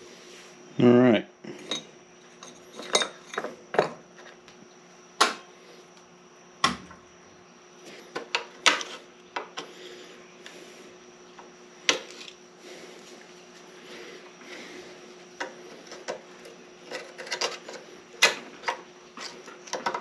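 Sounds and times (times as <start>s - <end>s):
faint steady hum: 0.0s - 20.0s
metal tools clanking: 1.6s - 4.0s.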